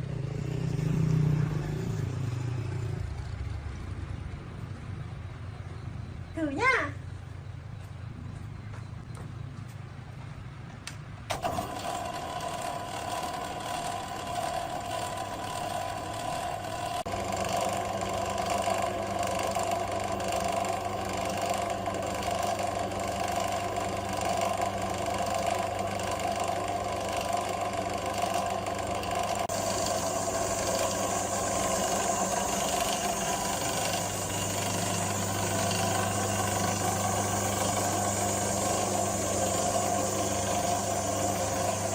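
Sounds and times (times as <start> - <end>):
air compressor engine running: 11.3 - 41.9.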